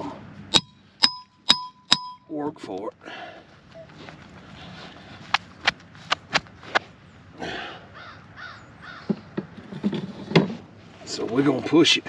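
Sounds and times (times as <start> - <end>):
bird harsh calls: 7.1 - 9.4.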